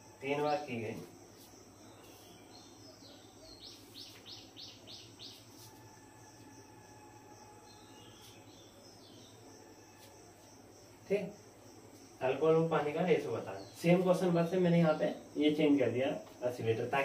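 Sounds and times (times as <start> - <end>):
bird chirping: 1.7 - 5.8, 6.9 - 10.0.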